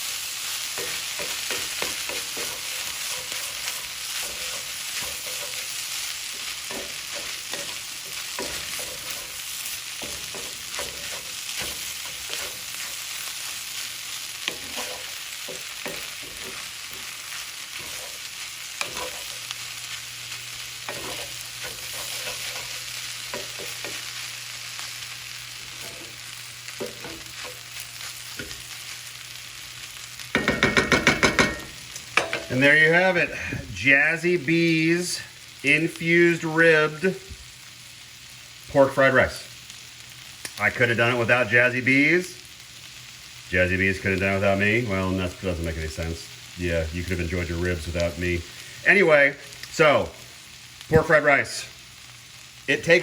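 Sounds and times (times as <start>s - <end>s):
rice sizzling in a pan: 0.0s - 53.0s
spatula scraping and tapping pan: 0.7s - 9.4s, 10.0s - 13.0s, 14.4s - 19.5s, 20.8s - 24.0s, 25.7s - 26.2s, 26.8s - 27.6s, 30.3s - 32.6s.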